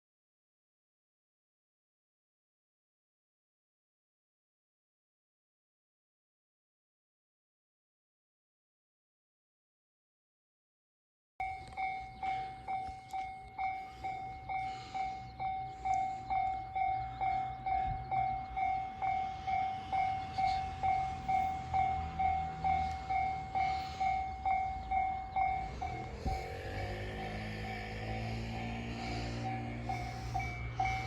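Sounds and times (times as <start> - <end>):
level crossing bell ringing: 11.4 - 28.8, 29.6 - 31.0
train running with rising whine: 11.4 - 31.0.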